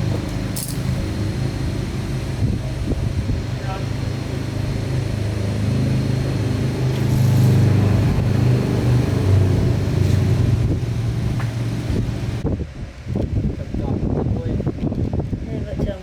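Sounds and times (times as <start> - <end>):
motor humming: 0.0 - 12.4.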